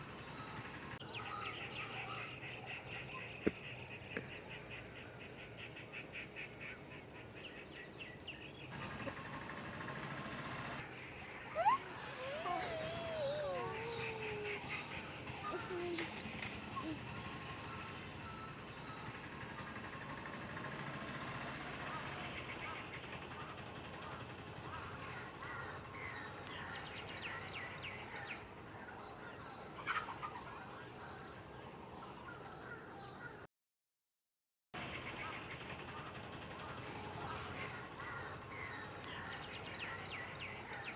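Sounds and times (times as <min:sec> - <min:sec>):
birds chirping: 0:07.6 - 0:24.2
long wavering call: 0:10.9 - 0:17.1.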